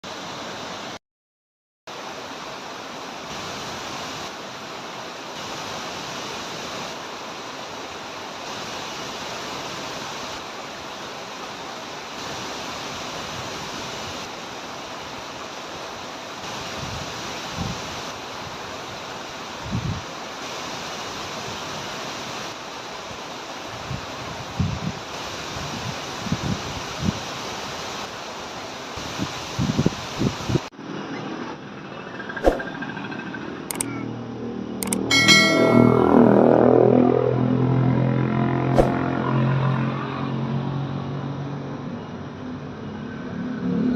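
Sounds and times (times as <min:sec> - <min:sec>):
waterfall rushing: 0:01.9 - 0:30.7.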